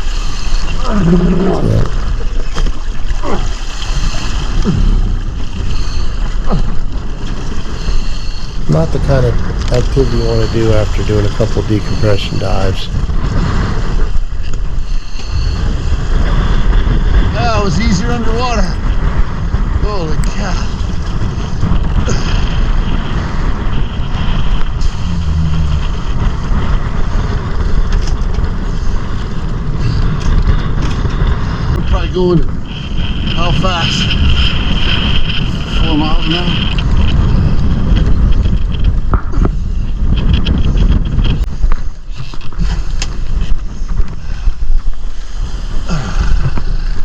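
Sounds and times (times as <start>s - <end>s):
rough sea water hissing: 0.0s - 9.4s, 24.8s - 26.5s
choppy sea: 0.0s - 47.0s
wind buffeting microphone: 0.0s - 47.0s.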